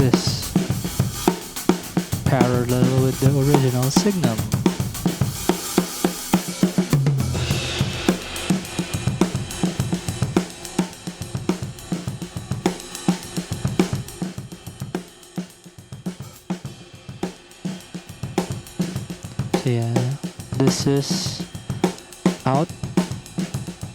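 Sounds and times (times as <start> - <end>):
cymbal crash: 0.0 - 15.3
drum kit playing a groove: 0.0 - 23.9.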